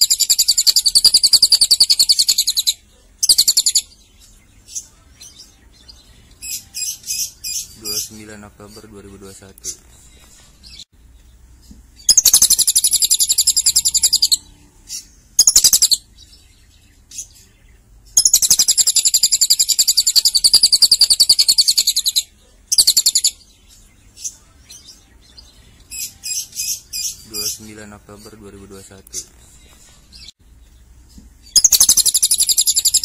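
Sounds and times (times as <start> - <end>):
bird high-pitched trills: 0.0 - 4.0, 12.0 - 17.4, 18.2 - 23.8, 31.5 - 33.0.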